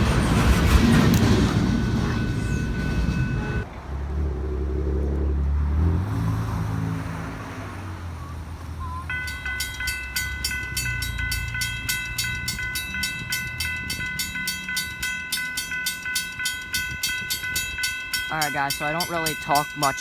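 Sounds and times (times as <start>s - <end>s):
train rumble: 0.0s - 5.9s, 8.8s - 20.0s
crossing warning bell ringing: 1.9s - 3.7s, 8.9s - 20.0s.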